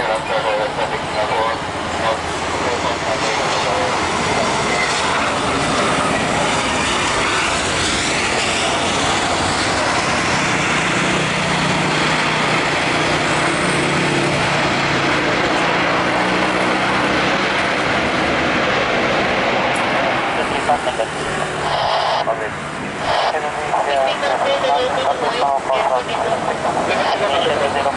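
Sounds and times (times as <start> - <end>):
jet engines passing low: 0.0 - 27.9.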